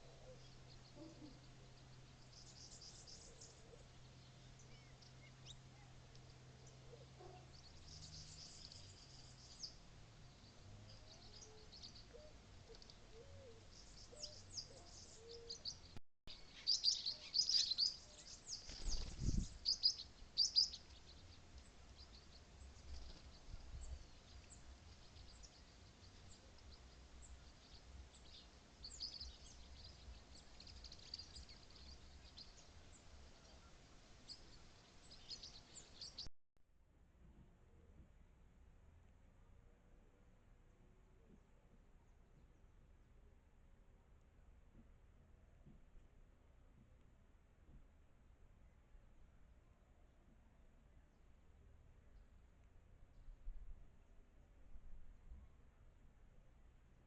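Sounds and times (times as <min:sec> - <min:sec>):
small birds chirping: 0:00.0 - 0:36.3.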